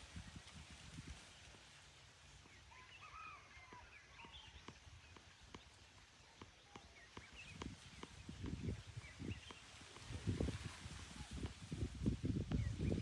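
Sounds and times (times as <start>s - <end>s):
faint birdsong chirps: 1.2s - 10.5s.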